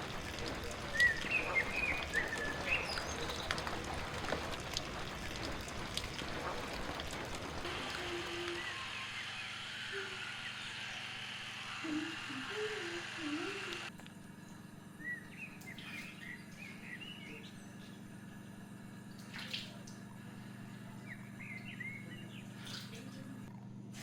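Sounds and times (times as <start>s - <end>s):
running water hiss: 0.0s - 13.9s
low hum: 0.0s - 24.0s
low wavering calls: 5.4s - 13.9s.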